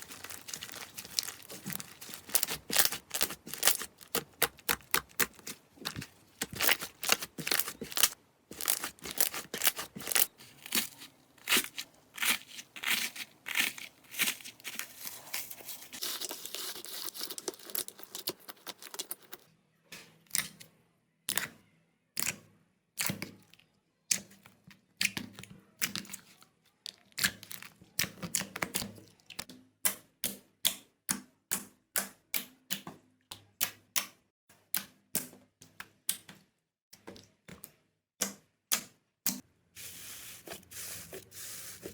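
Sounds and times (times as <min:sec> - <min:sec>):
slime crackling and popping: 0:00.0 - 0:15.1.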